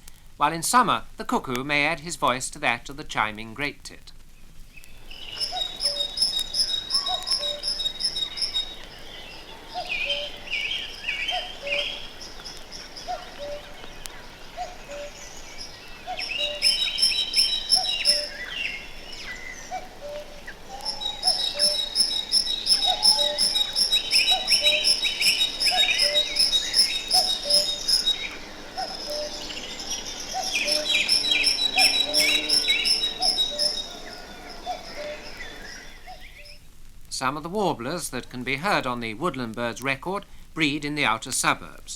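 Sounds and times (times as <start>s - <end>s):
small birds chirping: 3.4s - 36.7s
cuckoo calling: 4.8s - 36.7s
great tit chiming song: 5.0s - 36.6s.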